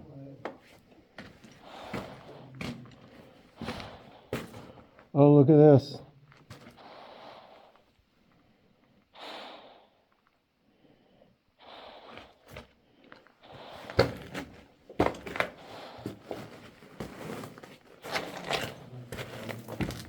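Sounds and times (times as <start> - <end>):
person breathing out in puffs: 9.1 - 10.1
footsteps crunching on loose rock: 13.8 - 20.0.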